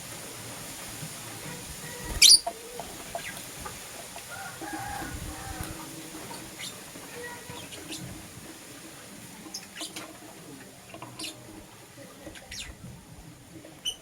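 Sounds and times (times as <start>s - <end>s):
lovebirds chirping: 1.9s - 3.4s, 5.4s - 8.1s, 10.9s - 11.6s, 12.2s - 12.8s.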